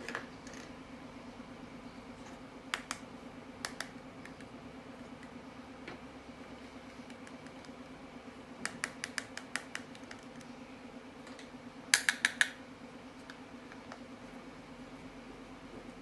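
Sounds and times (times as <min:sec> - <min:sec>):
steady low hum: 0:00.0 - 0:16.0
sharp clicks: 0:08.6 - 0:10.5, 0:11.4 - 0:12.6.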